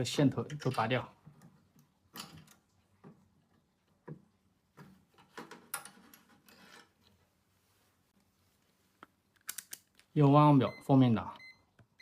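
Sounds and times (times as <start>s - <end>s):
wire connectors clicking and scraping: 0.3s - 7.2s, 9.0s - 10.2s.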